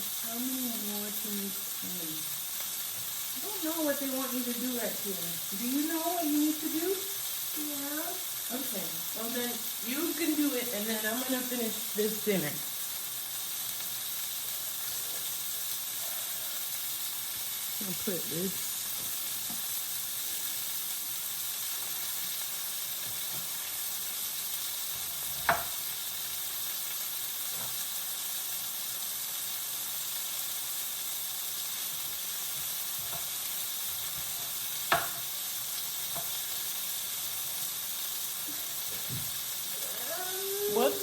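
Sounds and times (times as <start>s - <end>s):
food sizzling in a frying pan: 0.0s - 41.0s
utensil knocking pan: 25.4s - 25.7s, 34.9s - 35.2s.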